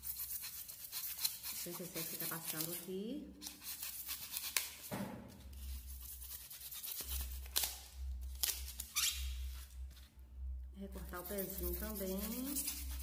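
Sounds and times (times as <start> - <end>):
knife cutting styrofoam: 0.0 - 9.7, 11.2 - 13.0.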